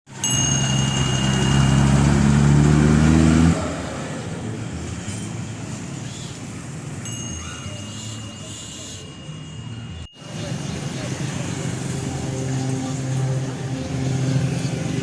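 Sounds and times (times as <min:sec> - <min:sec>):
street noise: 0:00.1 - 0:15.0
truck engine running hard: 0:00.5 - 0:06.9, 0:10.2 - 0:15.0.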